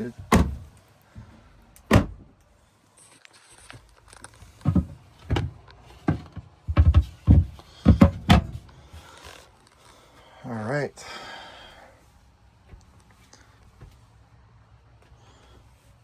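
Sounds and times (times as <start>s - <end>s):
cabinet doors knocking shut: 6.1s - 8.6s.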